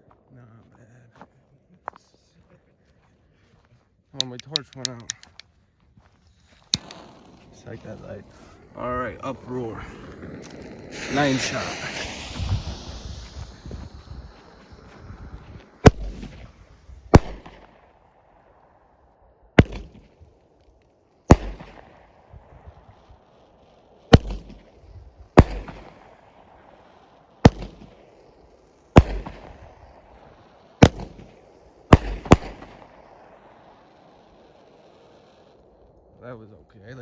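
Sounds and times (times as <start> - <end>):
firework bangs: 6.5 - 18.9, 19.5 - 36.1.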